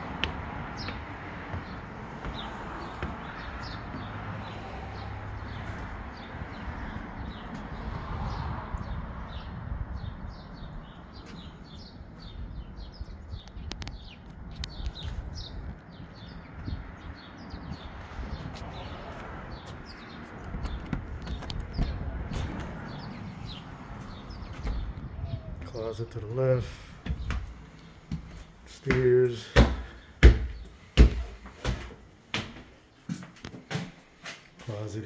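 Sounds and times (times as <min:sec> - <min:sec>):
small birds chirping: 0:00.0 - 0:33.1.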